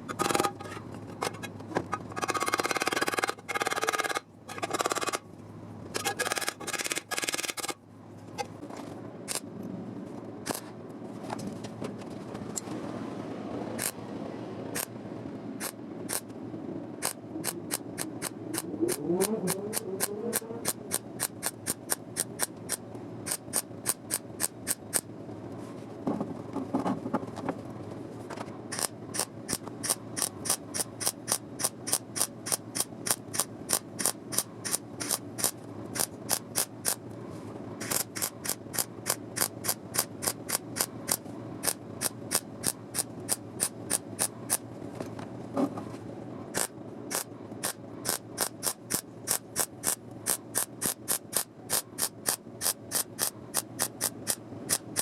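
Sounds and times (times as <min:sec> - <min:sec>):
hand tool clicking: 0:06.0 - 0:07.8, 0:17.0 - 0:25.0, 0:28.7 - 0:37.0, 0:37.8 - 0:44.6, 0:46.6 - 0:55.0.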